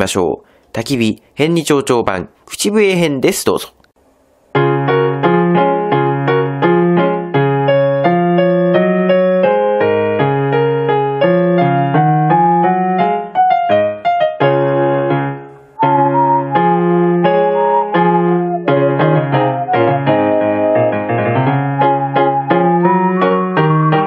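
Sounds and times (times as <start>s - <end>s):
electronic keyboard piano chords: 4.6s - 24.0s
whistled tune: 15.8s - 24.0s.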